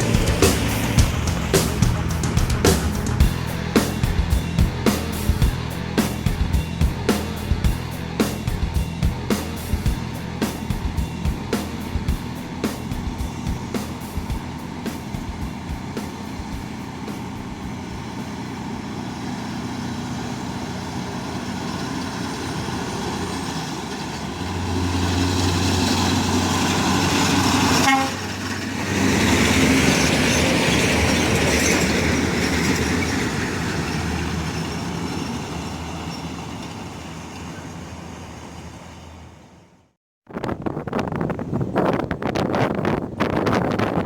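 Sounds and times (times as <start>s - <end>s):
truck passing at high speed: 0.0s - 39.9s.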